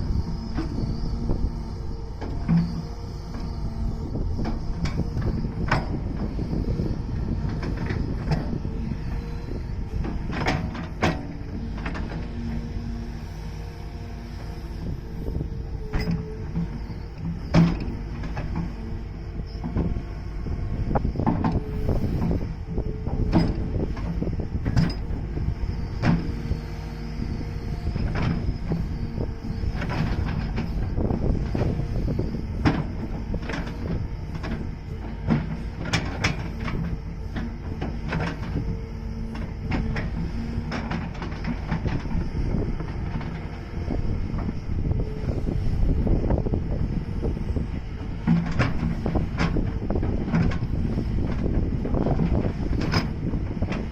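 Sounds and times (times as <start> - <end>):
diesel engine under load: 0.0 - 53.9
excavator gear knocking and clanking: 4.3 - 6.4, 10.0 - 12.3, 15.1 - 18.8, 21.0 - 22.4, 23.0 - 25.2, 28.0 - 38.8, 39.4 - 43.5, 48.1 - 53.9.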